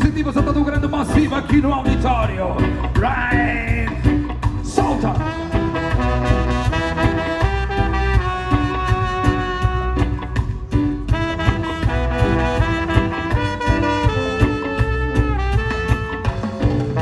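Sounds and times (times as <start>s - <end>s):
bass: 0.0s - 17.0s
drums: 0.0s - 17.0s
horn melody: 4.8s - 17.0s.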